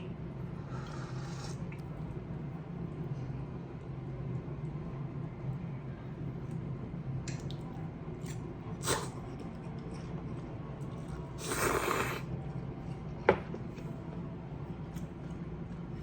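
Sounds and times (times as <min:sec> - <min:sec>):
low steady hum: 0:00.0 - 0:16.0
person slurping: 0:00.7 - 0:01.6, 0:11.4 - 0:12.3.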